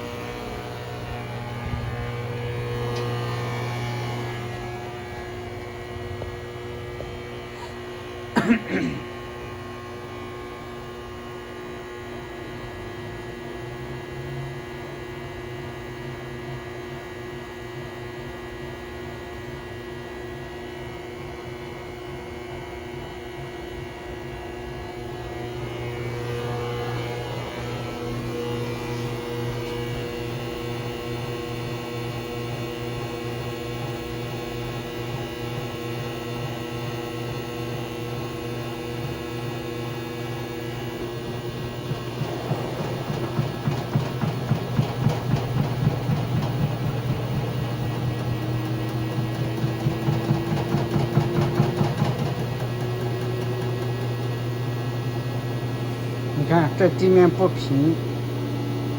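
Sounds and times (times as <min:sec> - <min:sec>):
washing machine spinning: 0:00.0 - 0:12.1, 0:24.3 - 0:58.9.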